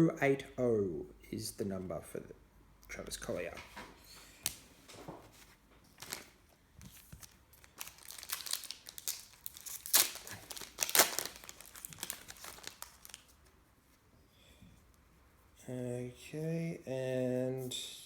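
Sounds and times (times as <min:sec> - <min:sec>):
wrapper tearing and crinkling: 0:06.0 - 0:06.4, 0:07.2 - 0:13.4.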